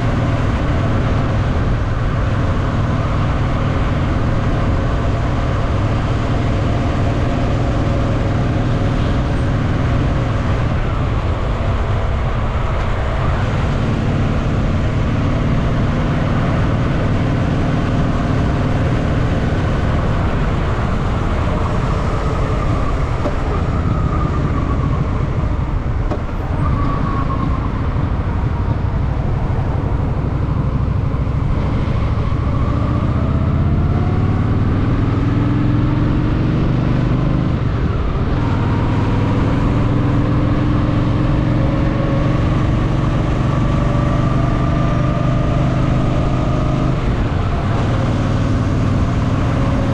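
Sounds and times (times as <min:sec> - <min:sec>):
motorcycle engine rumbling: 0:00.0 - 0:36.7, 0:37.4 - 0:49.9.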